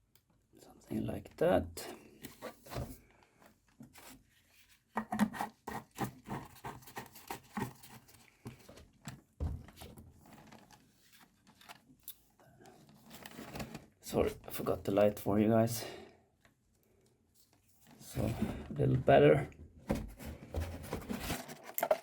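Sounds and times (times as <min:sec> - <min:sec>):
handling noises of tools and parts: 0:19.9 - 0:22.0.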